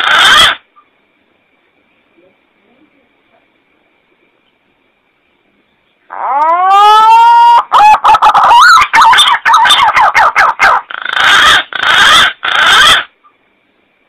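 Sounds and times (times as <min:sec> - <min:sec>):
loud bird calls: 0:00.0 - 0:00.9, 0:06.1 - 0:13.4.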